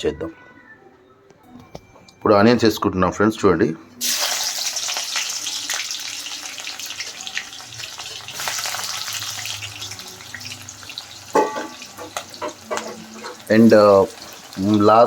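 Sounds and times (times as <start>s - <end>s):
onions sizzling in hot oil: 4.0s - 15.0s.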